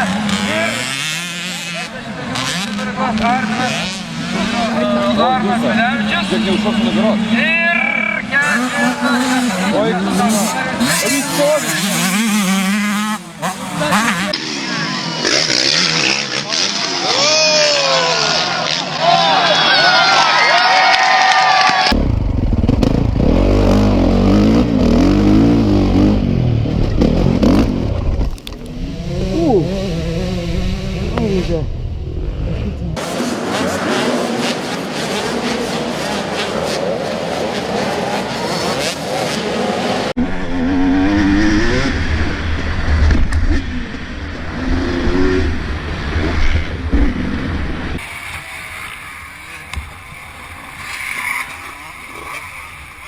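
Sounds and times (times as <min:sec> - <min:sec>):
motocross bike engine revving: 0:00.0 - 0:20.5, 0:21.8 - 0:53.0
deep steady rumble: 0:21.9 - 0:33.0.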